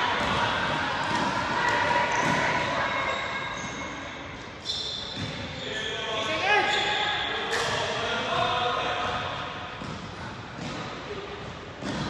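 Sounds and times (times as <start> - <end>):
basketball bouncing on court: 8.4 - 12.0.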